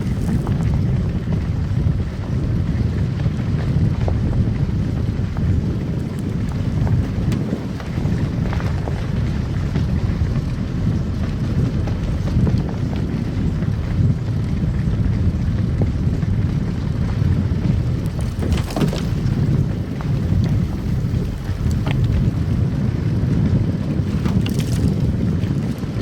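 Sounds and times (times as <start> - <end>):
car tyres and engine rumbling: 0.0 - 26.0.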